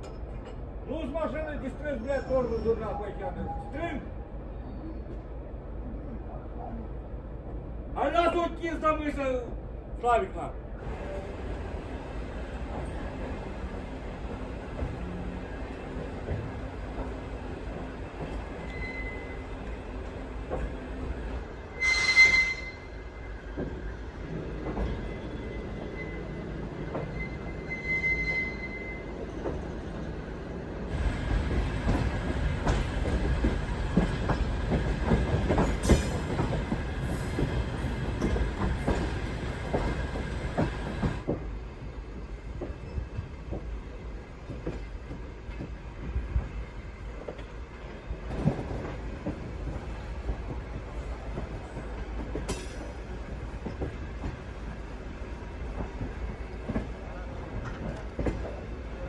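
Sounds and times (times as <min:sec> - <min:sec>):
train rumbling and clatter: 0:00.0 - 0:59.0
train wheels squealing: 0:04.6 - 0:05.2, 0:18.3 - 0:19.8, 0:21.7 - 0:23.9, 0:24.8 - 0:29.5, 0:34.3 - 0:41.0, 0:42.7 - 0:43.4.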